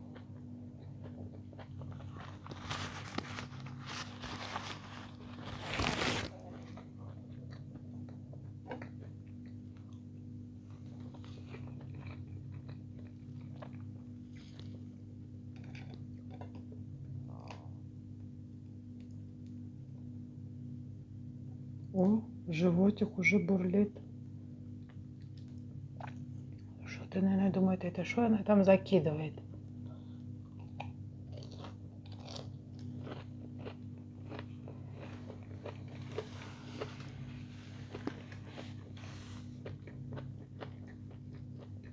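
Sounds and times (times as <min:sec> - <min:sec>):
person chewing food: 0:00.0 - 0:17.8, 0:24.8 - 0:26.8, 0:30.1 - 0:41.9
steady low hum: 0:00.0 - 0:41.9.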